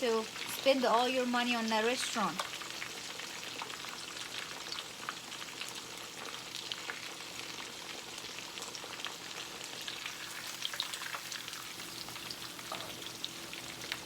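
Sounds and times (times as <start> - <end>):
chicken frying in hot oil: 0.0 - 14.0.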